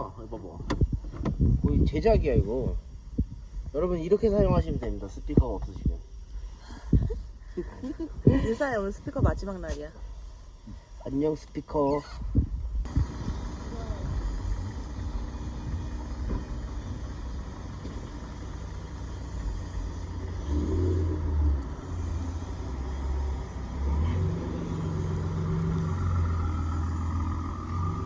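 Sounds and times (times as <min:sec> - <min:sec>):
jet ski engine running: 0:12.8 - 0:28.0.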